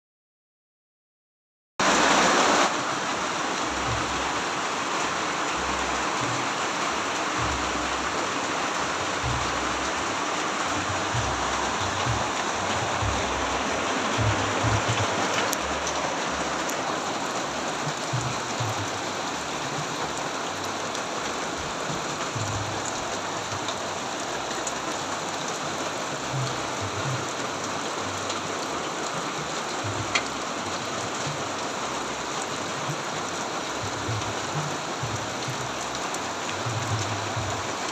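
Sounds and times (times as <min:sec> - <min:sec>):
steady rain falling: 0:01.8 - 0:37.9
low rumbling thumps: 0:08.9 - 0:16.7.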